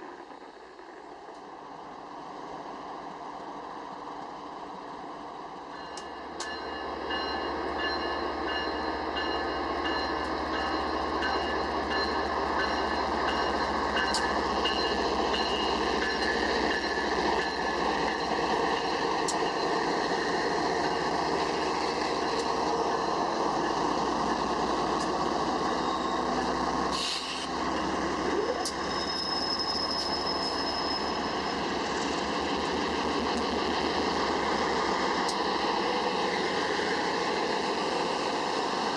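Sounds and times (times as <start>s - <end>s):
train wheels on rails: 0.0s - 38.9s
high ringing from wheels: 28.8s - 33.0s.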